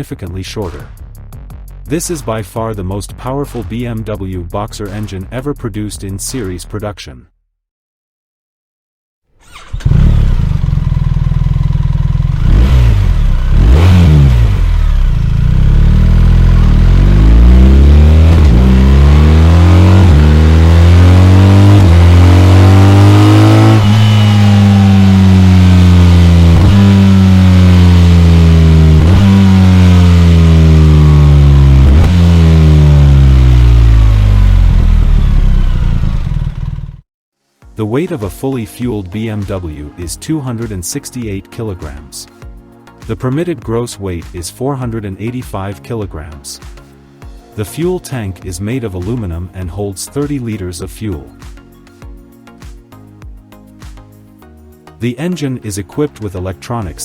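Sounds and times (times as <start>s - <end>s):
motorcycle engine accelerating and shifting: 9.4s - 37.0s.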